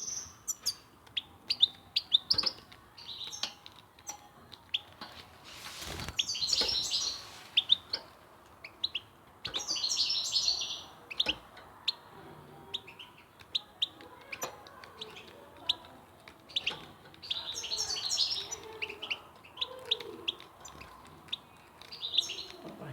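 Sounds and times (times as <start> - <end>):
goldfinch twittering song: 0.0 - 5.0, 5.9 - 12.1, 12.7 - 22.9
short bird tweets: 6.0 - 8.1.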